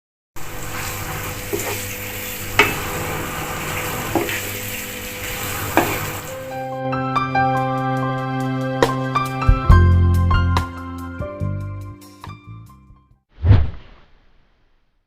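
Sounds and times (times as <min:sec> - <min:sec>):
food sizzling in a frying pan: 0:00.4 - 0:06.6.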